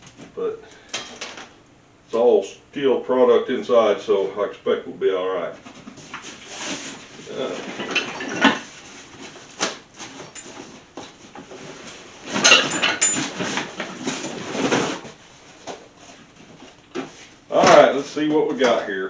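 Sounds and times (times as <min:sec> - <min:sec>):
cardboard box rustling: 0:05.6 - 0:12.4, 0:13.2 - 0:17.8
metal parts clanking and scraping: 0:06.6 - 0:08.9, 0:11.5 - 0:15.0.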